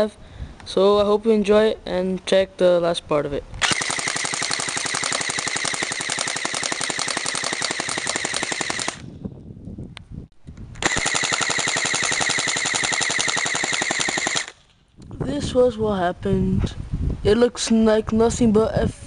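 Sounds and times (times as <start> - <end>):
airsoft gun firing full auto: 3.6 - 9.1, 10.8 - 14.7.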